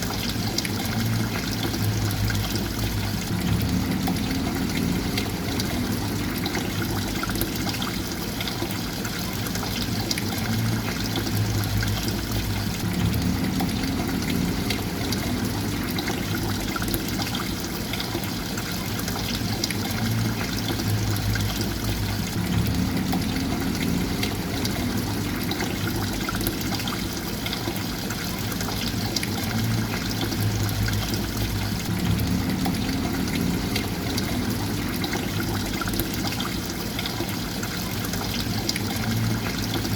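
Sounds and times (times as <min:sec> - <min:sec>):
water trickling and pouring: 0:00.0 - 0:39.9
low rumble: 0:01.1 - 0:07.8, 0:10.6 - 0:17.5, 0:20.1 - 0:26.9, 0:29.5 - 0:36.2.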